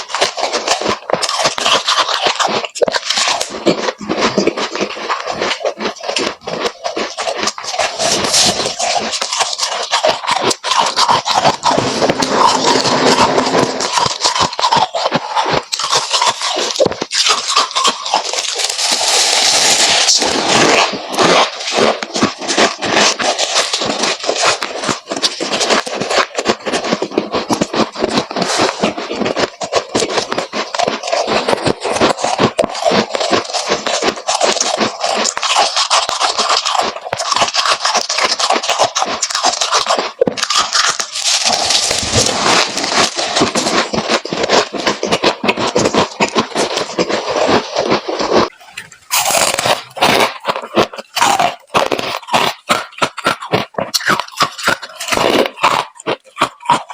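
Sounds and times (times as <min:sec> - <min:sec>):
frost being crunched: 0:40.4 - 0:43.9.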